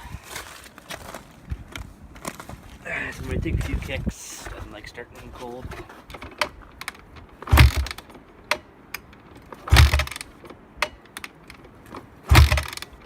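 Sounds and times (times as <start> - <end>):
motorcycle engine turning over: 6.2 - 8.1, 9.6 - 10.4, 12.3 - 13.0
kick-starter kicks: 7.5 - 8.0, 9.7 - 10.2, 12.3 - 12.8.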